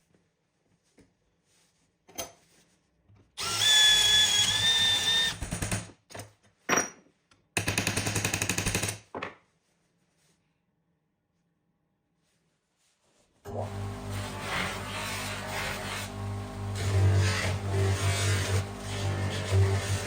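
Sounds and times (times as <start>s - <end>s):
power tool whining: 3.4s - 5.5s, 13.5s - 20.0s.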